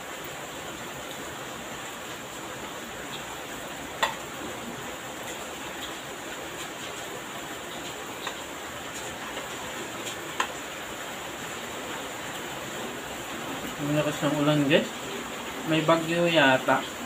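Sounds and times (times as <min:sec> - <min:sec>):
heavy rain hissing: 0:00.0 - 0:17.0
faint utensil clicks: 0:10.0 - 0:10.6.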